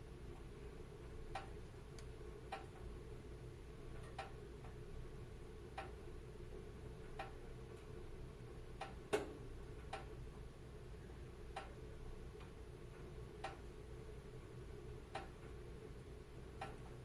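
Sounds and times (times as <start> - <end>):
low rumble of burning fire: 0.0 - 17.0.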